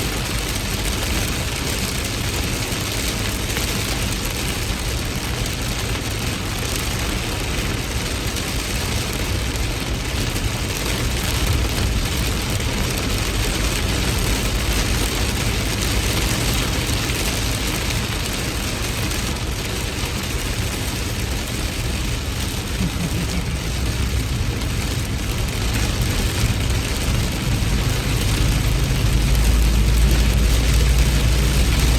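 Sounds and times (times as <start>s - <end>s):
heavy rain: 0.0s - 31.9s
low rumble: 22.0s - 31.9s.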